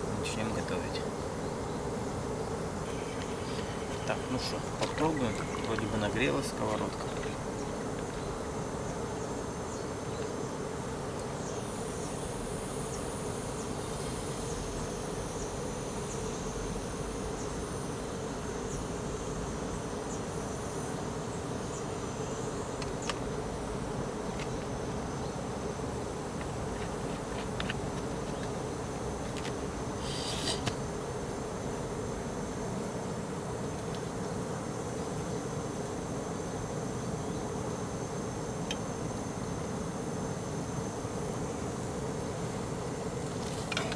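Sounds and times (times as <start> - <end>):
gas burner hissing: 29.6 - 31.0
high thin bird calls: 30.0 - 30.6
utensil scraping: 30.0 - 30.8.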